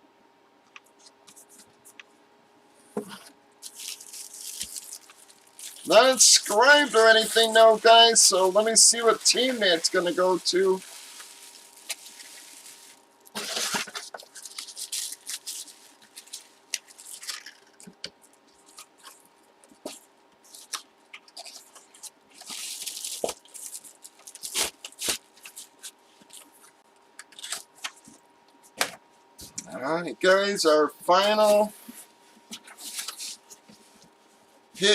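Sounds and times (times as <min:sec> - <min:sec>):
plastic packaging rustling: 0:03.6 - 0:28.2, 0:31.4 - 0:34.1.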